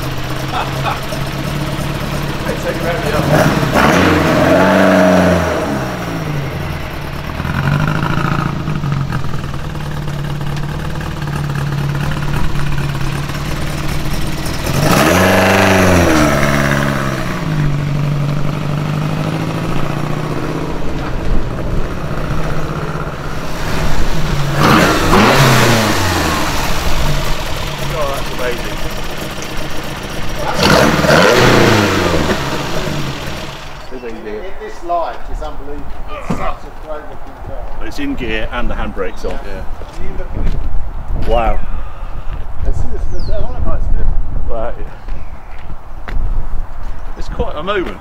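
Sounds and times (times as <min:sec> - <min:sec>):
car engine idling and revving: 0:00.0 - 0:34.2.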